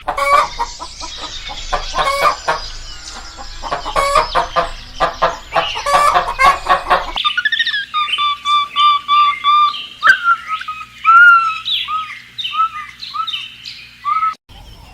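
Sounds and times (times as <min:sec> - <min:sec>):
chickens clucking: 0:00.0 - 0:07.2.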